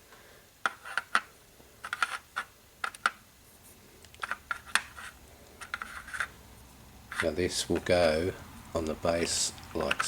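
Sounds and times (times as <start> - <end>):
plastic parts clicking and tapping: 0.6 - 3.2, 4.0 - 6.3, 8.8 - 10.0.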